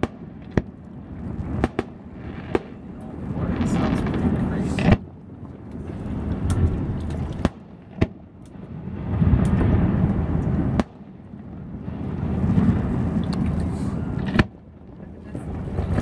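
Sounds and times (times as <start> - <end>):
deep rumbling booms: 0.0 - 5.1, 5.8 - 16.0
fireworks cracking: 0.0 - 5.1.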